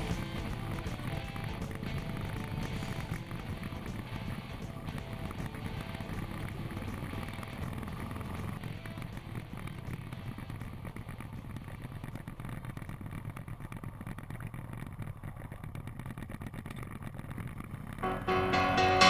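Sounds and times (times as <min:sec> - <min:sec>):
music: 0:00.0 - 0:07.7, 0:18.0 - 0:19.0
motorcycle engine running low: 0:00.0 - 0:19.0
other motorcycles: 0:00.0 - 0:19.0.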